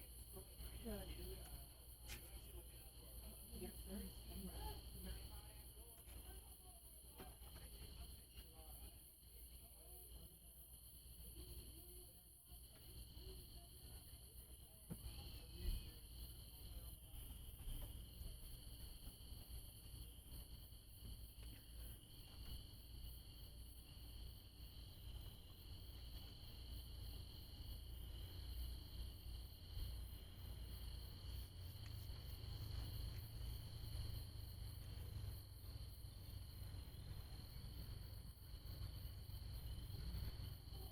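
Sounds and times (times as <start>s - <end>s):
crickets chirring: 0.0s - 40.9s
faint low rumble: 14.7s - 40.9s.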